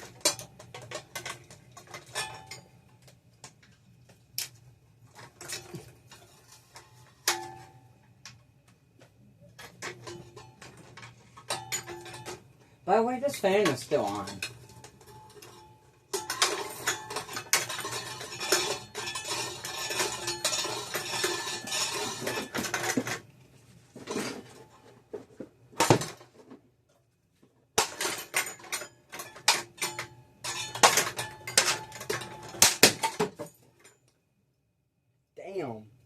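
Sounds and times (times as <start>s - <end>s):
metallic clattering and clanking: 0.0s - 2.7s, 9.5s - 12.5s, 13.3s - 23.3s, 27.8s - 33.9s
ceiling fan being smashed: 5.2s - 7.8s, 9.6s - 23.3s, 25.7s - 26.5s, 27.8s - 33.6s.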